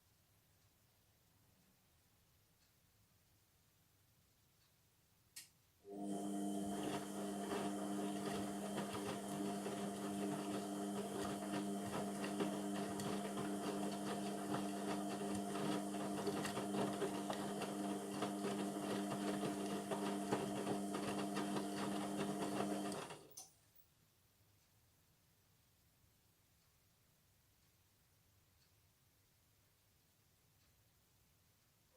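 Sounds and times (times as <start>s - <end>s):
washing machine motor hum: 5.9s - 23.4s.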